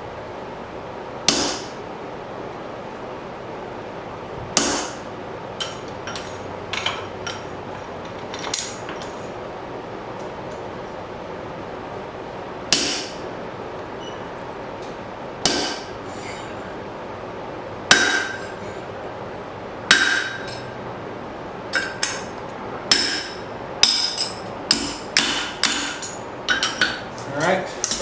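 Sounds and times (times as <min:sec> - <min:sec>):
hammer striking punch on anvil: 0:01.3 - 0:01.8, 0:04.6 - 0:05.8, 0:12.7 - 0:13.2, 0:15.4 - 0:15.9, 0:17.9 - 0:18.6, 0:19.9 - 0:20.6, 0:22.9 - 0:27.0.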